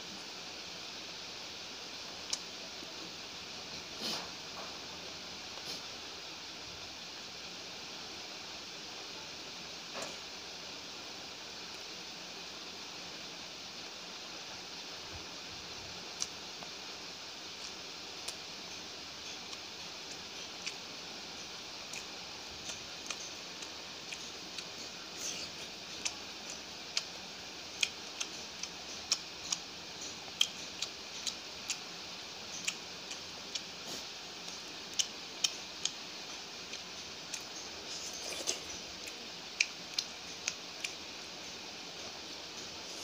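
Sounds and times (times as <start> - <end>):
steady hiss: 0.0 - 43.0
wet chewing mouth clicks: 27.8 - 31.9, 32.5 - 41.0.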